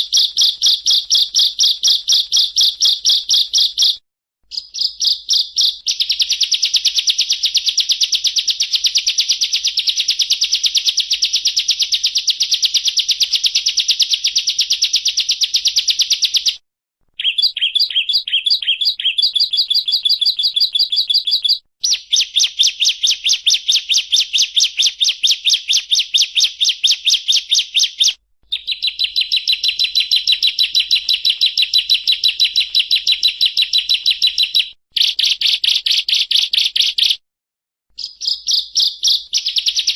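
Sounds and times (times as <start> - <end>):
bird trilling: 0.0 - 7.5, 17.2 - 37.0, 38.0 - 39.9.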